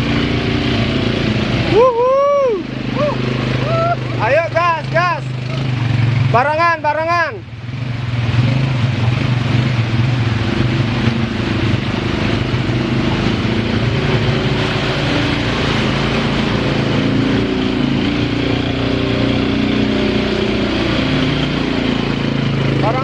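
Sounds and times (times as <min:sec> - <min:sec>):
atv engine revving: 0:00.0 - 0:23.0
steady rushing noise: 0:07.7 - 0:23.0.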